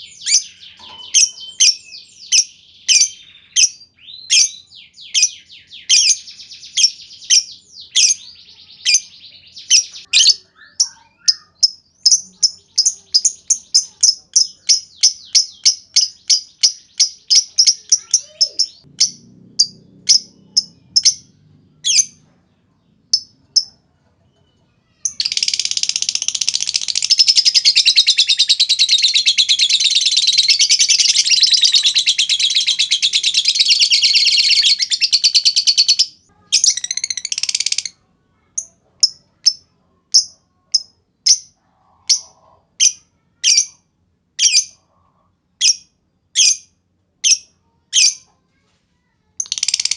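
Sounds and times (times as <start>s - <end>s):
lovebird rattling chatter: 25.1s - 27.6s, 49.4s - 49.9s.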